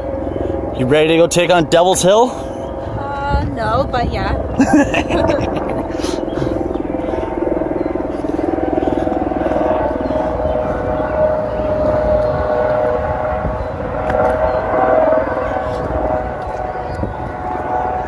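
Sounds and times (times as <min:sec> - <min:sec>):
low background rumble: 0:01.6 - 0:18.0.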